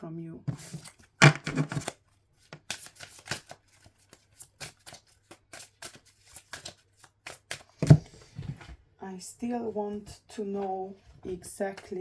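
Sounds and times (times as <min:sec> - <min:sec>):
cards being shuffled by hand: 0:00.5 - 0:08.0.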